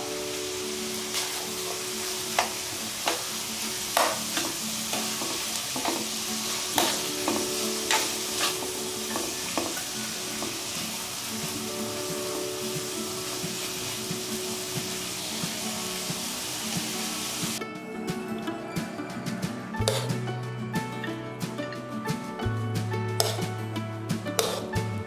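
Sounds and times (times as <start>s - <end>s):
meat sizzling in a frying pan: 0.0s - 17.6s
spatula clacking against pan: 1.1s - 10.6s, 23.2s - 23.5s, 24.4s - 24.8s
metal spatula scraping pan: 3.9s - 10.6s, 19.8s - 20.2s, 23.2s - 23.5s, 24.4s - 24.8s.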